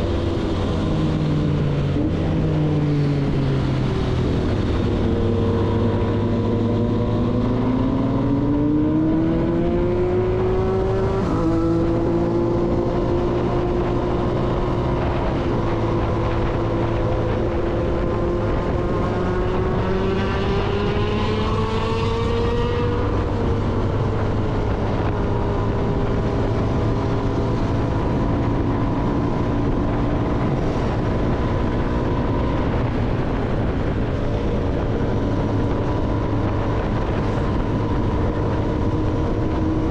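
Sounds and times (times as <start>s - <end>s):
motorcycle engine: 0.0s - 39.9s
wind rush: 0.0s - 39.9s.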